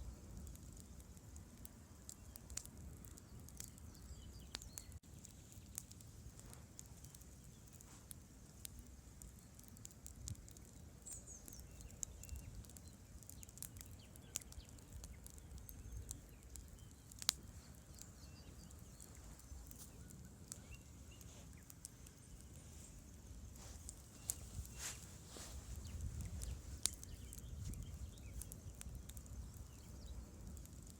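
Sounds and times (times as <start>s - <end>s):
campfire crackling: 0.0s - 30.9s.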